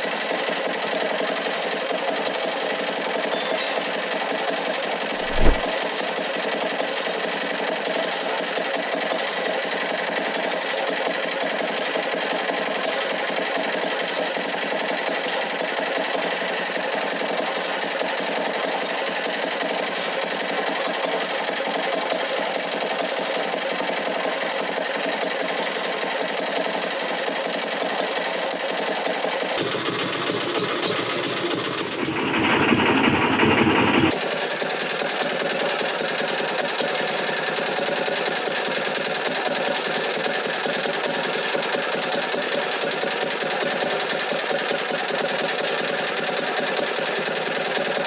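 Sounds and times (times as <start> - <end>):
steady machine noise: 29.6 - 34.2.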